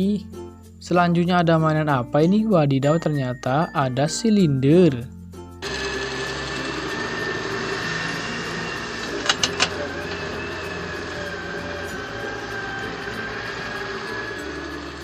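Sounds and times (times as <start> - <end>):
engine-like drone: 5.6 - 15.0.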